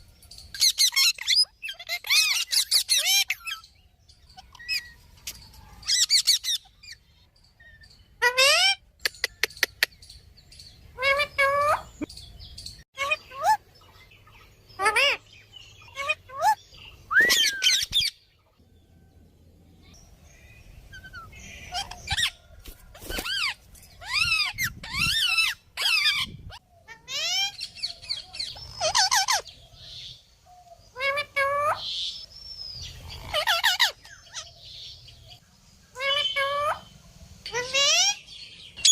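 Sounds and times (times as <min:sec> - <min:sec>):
parrot squawking: 0:00.6 - 0:03.6, 0:08.2 - 0:09.4, 0:14.8 - 0:15.2, 0:15.8 - 0:18.1, 0:23.2 - 0:29.5, 0:33.2 - 0:34.5, 0:36.0 - 0:36.9.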